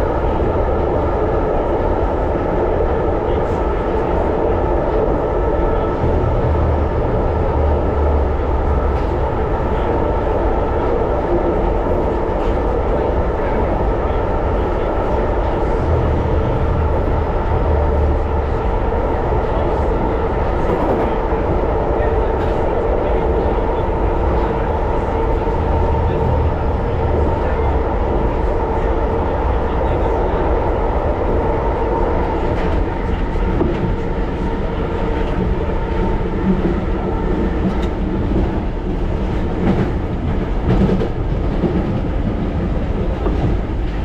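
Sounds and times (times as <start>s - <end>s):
train wheels running on track: 0.0s - 44.0s
low rumble: 5.8s - 9.6s, 15.5s - 19.6s, 24.4s - 28.8s.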